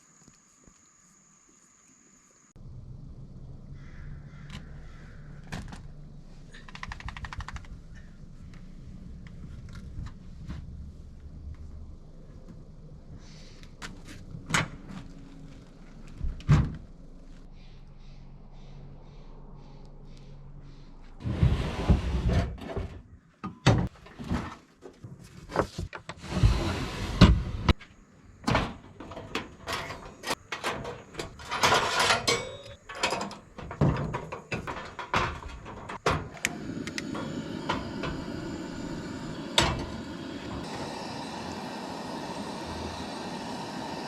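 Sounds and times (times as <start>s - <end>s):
steady low rumble: 2.6s - 6.6s, 7.6s - 13.3s, 15.8s - 21.3s, 36.4s - 44.0s
objects clunking and knocking: 21.2s - 40.7s.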